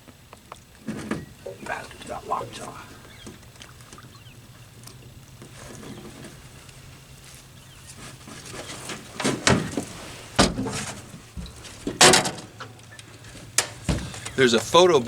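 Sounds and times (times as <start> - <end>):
low steady hum: 0.6 - 8.4
sharp knocks and thumps: 13.6 - 14.3.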